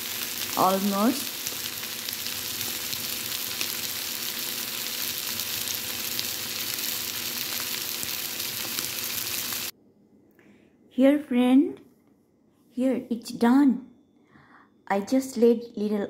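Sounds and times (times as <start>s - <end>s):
food sizzling in a skillet: 0.0s - 9.7s.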